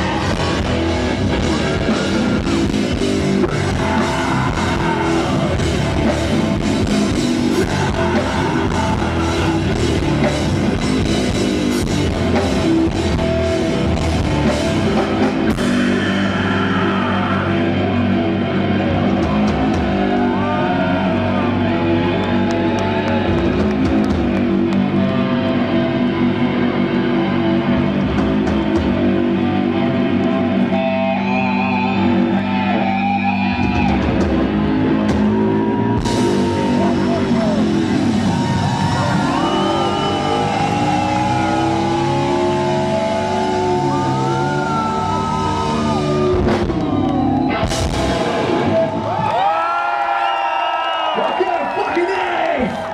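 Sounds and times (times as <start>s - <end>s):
drum kit: 0.0s - 18.2s, 27.8s - 29.3s, 33.4s - 49.5s
bending lead guitar lines: 0.0s - 22.7s, 23.3s - 49.2s
bass guitar: 0.0s - 50.0s
electric guitars: 0.0s - 50.6s.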